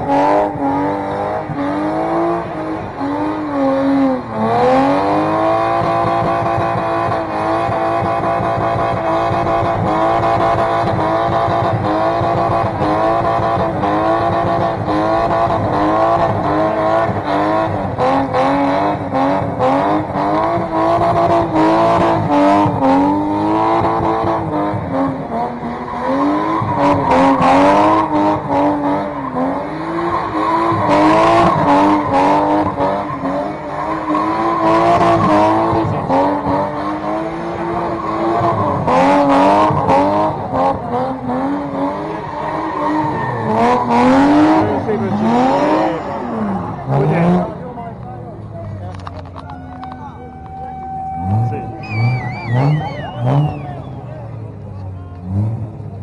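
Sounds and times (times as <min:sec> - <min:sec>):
car engine revving high: 0:00.0 - 0:56.0
tyres squealing: 0:49.4 - 0:54.0.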